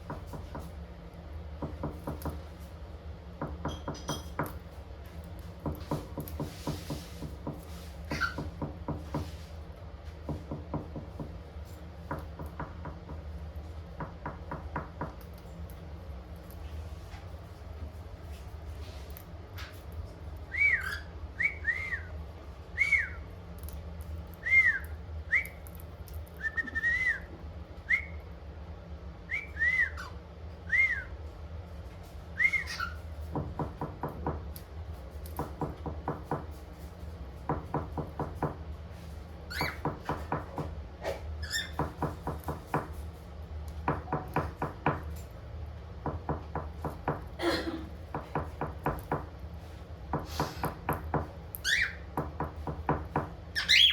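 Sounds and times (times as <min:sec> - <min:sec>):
cockatiel whistling: 0:20.5 - 0:22.1, 0:22.8 - 0:23.2, 0:26.4 - 0:27.3, 0:29.3 - 0:31.1, 0:32.4 - 0:33.0, 0:51.6 - 0:52.0, 0:53.6 - 0:53.9
sweeping bird calls: 0:53.6 - 0:53.9.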